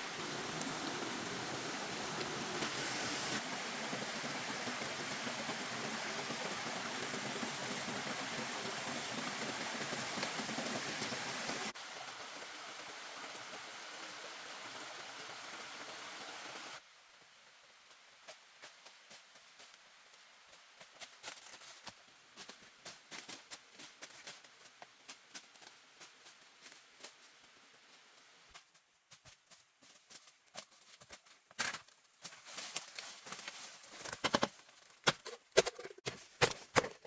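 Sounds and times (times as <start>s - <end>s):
rushing water: 0.0s - 16.8s.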